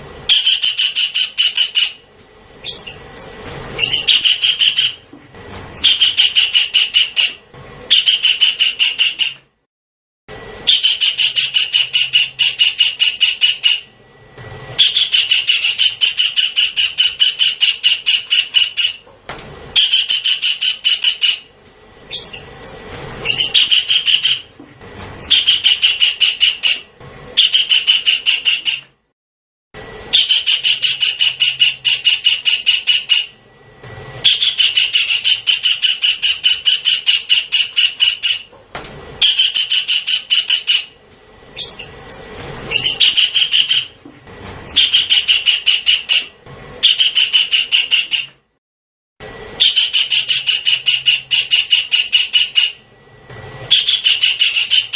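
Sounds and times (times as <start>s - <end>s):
kingfisher rattling call: 0.3s - 2.0s, 2.6s - 5.0s, 5.7s - 9.4s, 14.8s - 19.0s, 19.8s - 21.5s, 22.1s - 24.4s, 25.2s - 26.8s, 30.1s - 33.3s, 34.2s - 38.5s, 39.2s - 41.0s, 41.6s - 44.0s, 44.6s - 48.3s, 49.6s - 52.8s, 53.7s - 54.9s.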